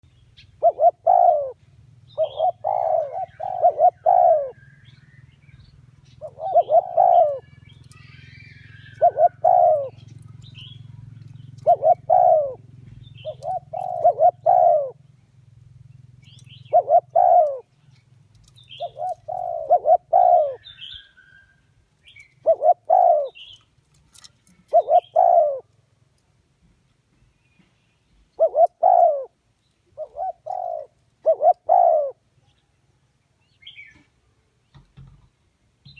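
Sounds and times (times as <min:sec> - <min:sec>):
dove cooing: 0:00.4 - 0:05.0, 0:05.9 - 0:15.1, 0:16.0 - 0:21.1, 0:22.0 - 0:25.8, 0:28.4 - 0:32.2.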